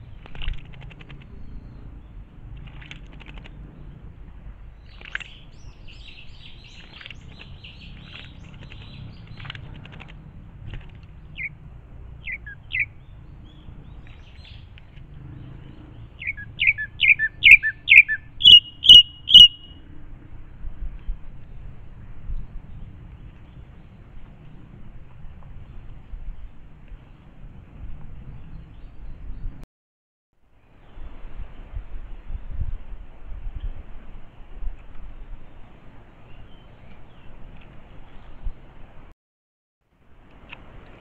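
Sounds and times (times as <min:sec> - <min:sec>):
wild birds chirping: 0:00.0 - 0:19.8
bird call of sharp notes: 0:12.2 - 0:13.1, 0:16.2 - 0:19.8.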